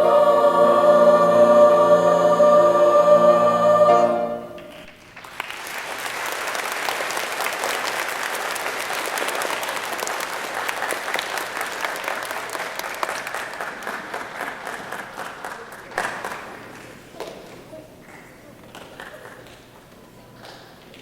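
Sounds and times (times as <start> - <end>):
choir holding a chord: 0.0 - 4.8
audience applauding: 4.6 - 17.0.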